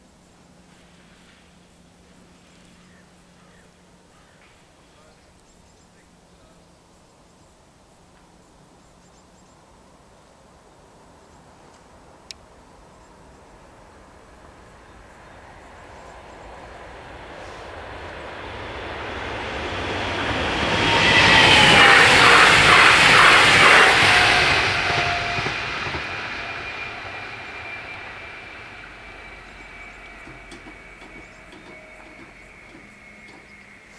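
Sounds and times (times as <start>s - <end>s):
train whine: 0.0s - 6.8s, 11.0s - 33.9s
train passing rumble: 0.0s - 9.0s, 9.6s - 33.9s
train wheel clicks: 29.5s - 33.9s.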